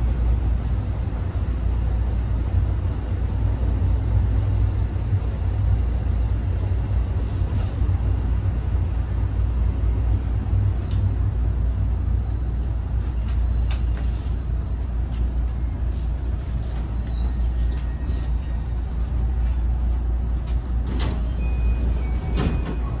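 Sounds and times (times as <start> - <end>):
wheels rumbling on rail: 0.0 - 23.0
brake squeals: 11.9 - 15.0, 16.8 - 19.2, 21.1 - 23.0.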